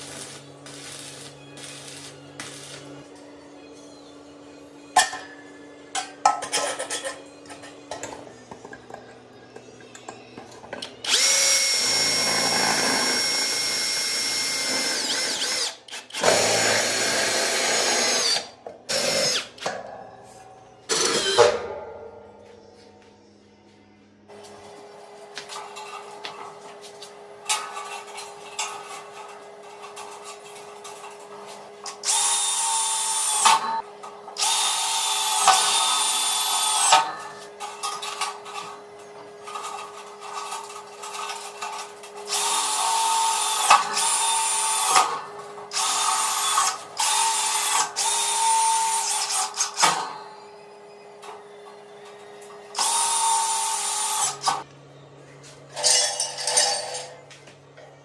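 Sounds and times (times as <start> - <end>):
electric power drill whining: 11.1 - 19.5, 52.8 - 54.6.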